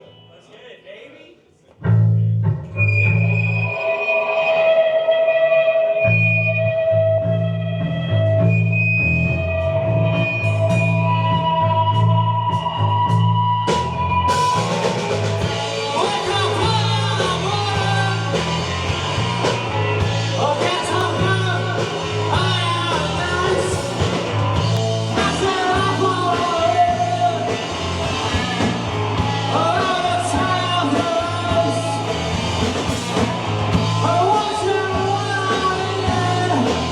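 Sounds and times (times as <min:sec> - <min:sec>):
drums: 0:01.7 - 0:36.9
pulsing bass line: 0:01.8 - 0:36.9
person singing: 0:15.6 - 0:18.6, 0:20.2 - 0:24.2, 0:25.0 - 0:28.6, 0:29.3 - 0:32.4, 0:33.9 - 0:36.9.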